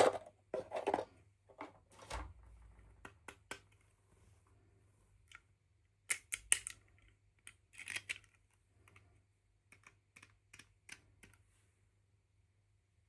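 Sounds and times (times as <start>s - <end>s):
plastic toy pieces clicking: 6.1s - 9.0s, 9.7s - 11.4s.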